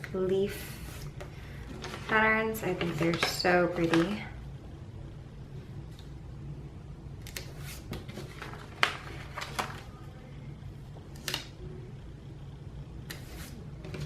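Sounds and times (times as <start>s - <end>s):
low steady hum: 0.0s - 14.0s
paper rustling and tapping: 1.7s - 4.2s, 7.2s - 9.9s.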